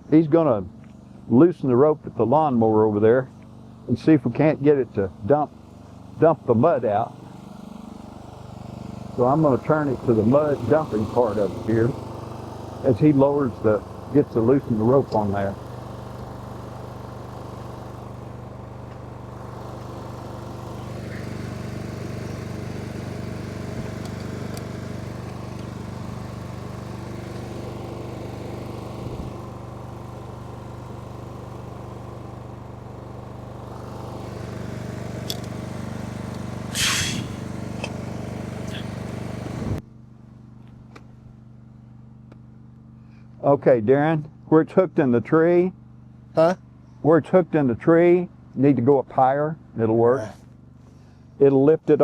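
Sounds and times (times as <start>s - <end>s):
lawn mower engine idling: 3.2s - 43.4s, 45.7s - 46.9s, 50.3s - 51.4s
loud hissing burst: 36.7s - 37.5s.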